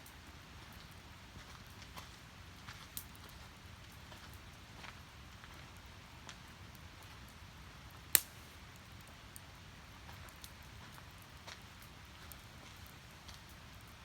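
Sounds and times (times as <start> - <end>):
firewood crackling: 0.0 - 14.0
loud sharp pop of fire: 8.1 - 8.5.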